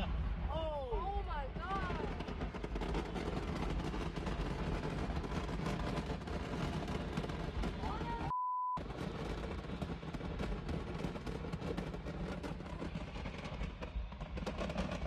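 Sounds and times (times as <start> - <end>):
low rumble: 0.0 - 15.0
fireworks crackling pops: 1.6 - 15.0
censor bleep: 8.3 - 8.8.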